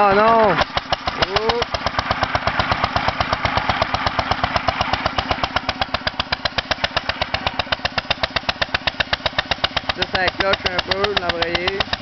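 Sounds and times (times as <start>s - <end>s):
single-cylinder engine exhaust pops: 0.0s - 12.0s.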